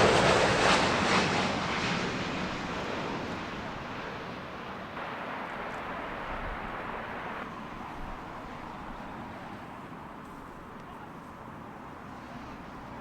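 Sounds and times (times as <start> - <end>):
jet airliner roar: 0.0 - 10.2.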